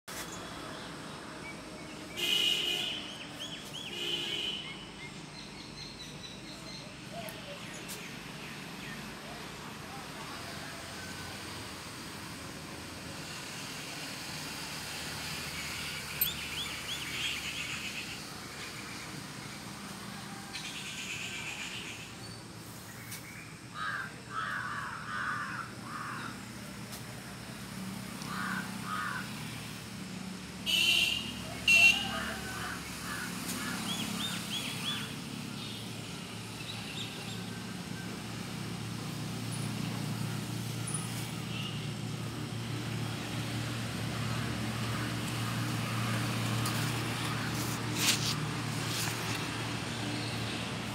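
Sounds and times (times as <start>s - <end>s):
passing vehicle engine hum: 5.2s - 23.1s, 23.7s - 50.9s
birds chirping: 15.8s - 19.2s
loud harsh bird calls: 28.2s - 29.4s.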